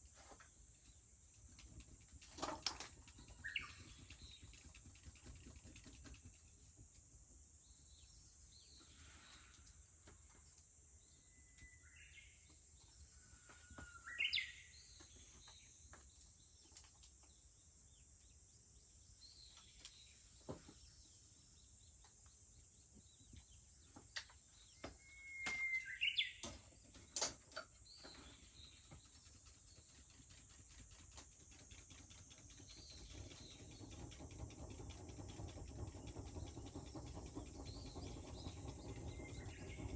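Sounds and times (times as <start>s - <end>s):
bush warbler singing: 14.0s - 15.7s, 22.6s - 39.9s.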